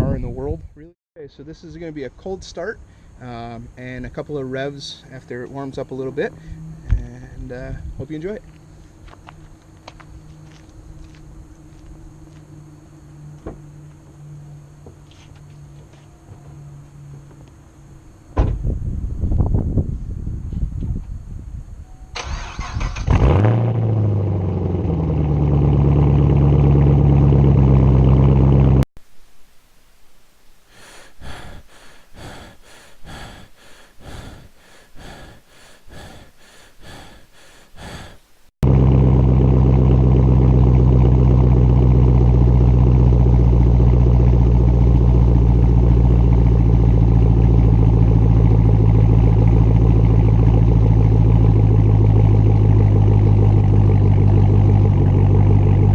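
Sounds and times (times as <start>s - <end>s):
car engine idling loudly: 38.6s - 55.9s.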